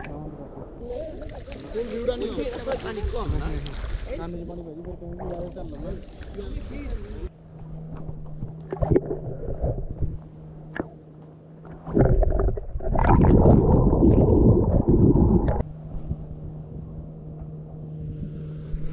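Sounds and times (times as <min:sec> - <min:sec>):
steady low hum: 0:04.6 - 0:18.9
wind buffeting microphone: 0:12.6 - 0:17.1.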